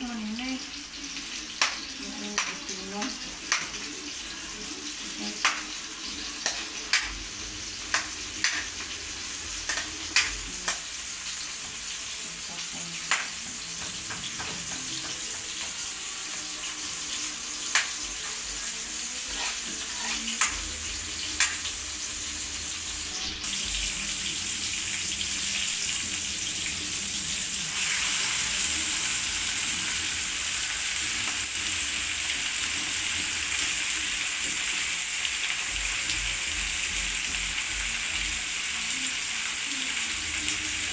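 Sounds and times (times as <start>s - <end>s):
food sizzling in hot oil: 0.0s - 40.9s
metal spatula scraping a pan: 19.2s - 21.7s.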